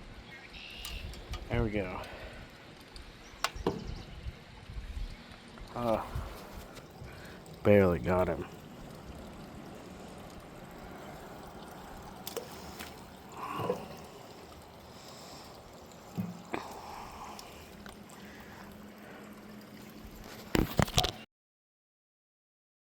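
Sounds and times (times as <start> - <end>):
creek water trickling: 0.0 - 21.2.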